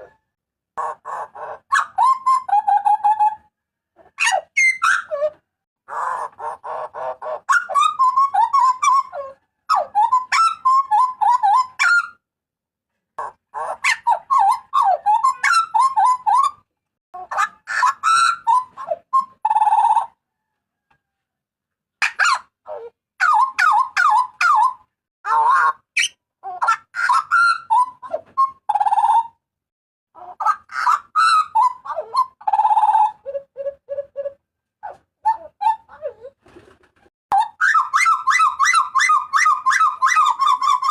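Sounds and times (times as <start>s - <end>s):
butcherbird calling: 37.3s - 40.9s.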